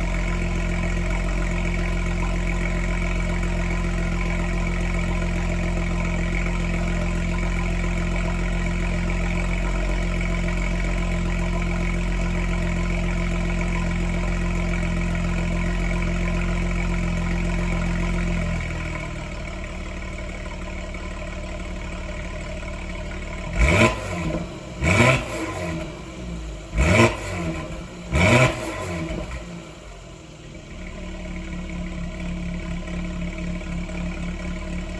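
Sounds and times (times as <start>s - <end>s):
engine idling and revving: 0.0s - 34.9s.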